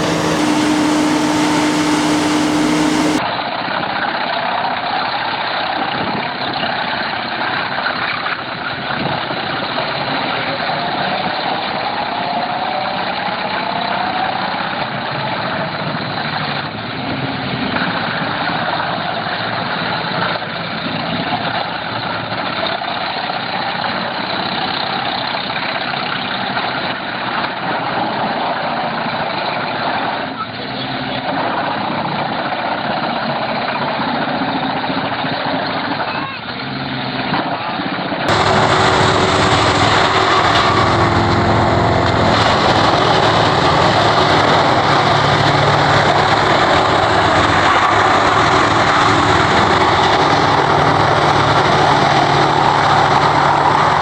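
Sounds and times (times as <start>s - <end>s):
wood chipper running: 0.0s - 3.2s, 38.3s - 54.0s.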